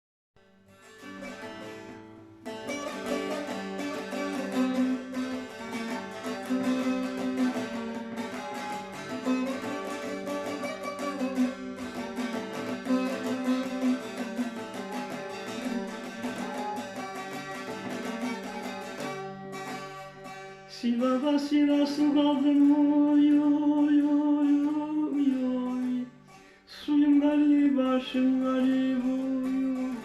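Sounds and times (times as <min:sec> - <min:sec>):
plucked long-necked lute: 0:00.5 - 0:30.0.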